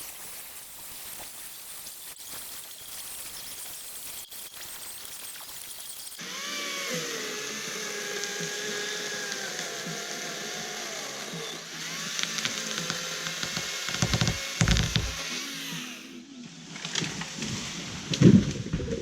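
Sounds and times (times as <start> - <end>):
mini chainsaw motor whining: 5.6 - 16.2
low thumps: 13.4 - 15.2.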